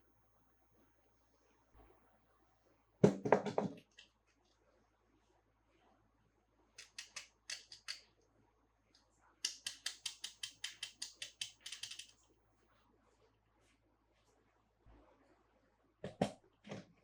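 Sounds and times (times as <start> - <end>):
sharp clicks: 6.8 - 8.0, 9.4 - 12.2.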